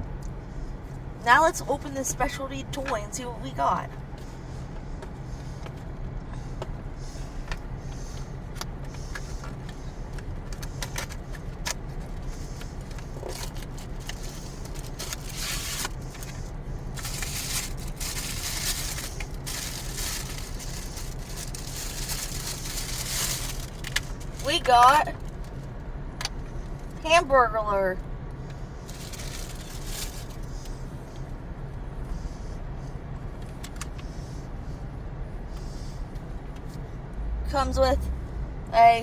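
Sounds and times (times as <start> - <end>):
steady low hum: 0.0 - 39.0
packaging crinkling by hand: 13.2 - 16.4, 17.0 - 24.4, 28.9 - 30.6.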